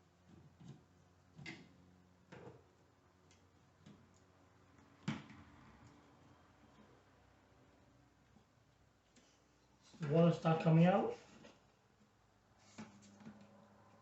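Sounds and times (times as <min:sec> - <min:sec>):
faint clicks and knocks of tools: 0:03.2 - 0:07.0.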